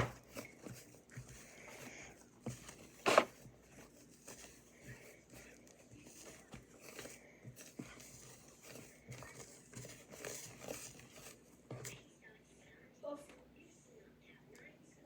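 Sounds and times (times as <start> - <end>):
sticky slime squelching: 0.0 - 12.0.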